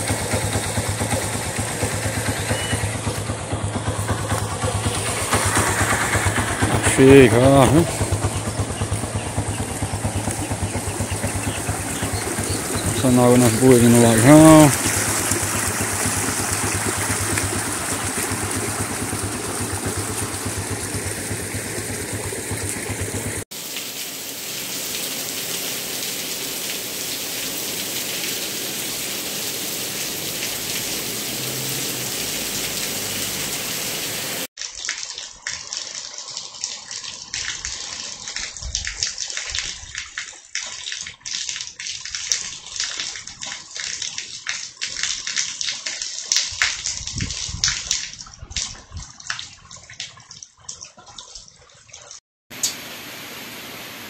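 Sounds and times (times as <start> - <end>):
water rushing over rock: 3.9 - 34.5
steady rain: 9.8 - 34.9, 52.5 - 54.0.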